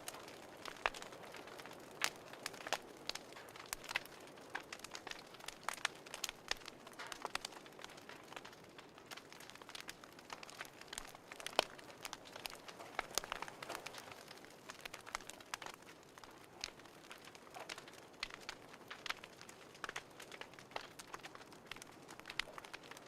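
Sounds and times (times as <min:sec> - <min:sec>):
sharp pops and snaps: 0:00.0 - 0:23.0
soft hiss of fire: 0:00.0 - 0:23.0
wood fire crackling: 0:00.0 - 0:23.0.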